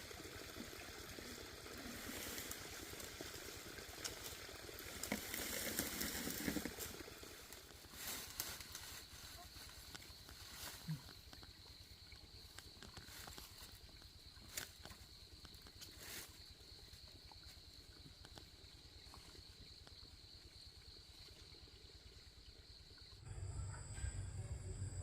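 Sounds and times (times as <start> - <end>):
insect chirring: 1.2 - 25.0
low hum: 23.2 - 25.0.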